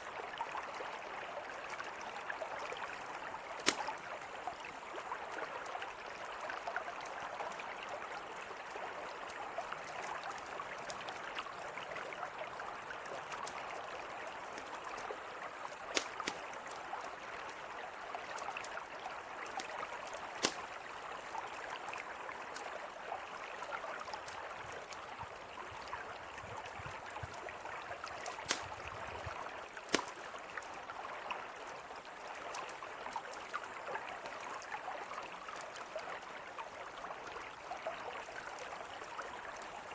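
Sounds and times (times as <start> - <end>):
river flowing: 0.0 - 39.9
campfire crackling and popping: 3.6 - 4.0, 13.3 - 13.6, 15.7 - 17.0, 19.4 - 20.9, 28.1 - 29.0, 29.8 - 30.7.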